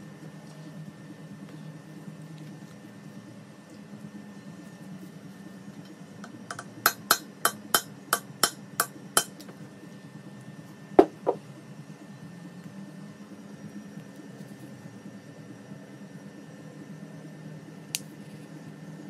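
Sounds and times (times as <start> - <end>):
hammer tapping on metal: 6.5 - 9.4.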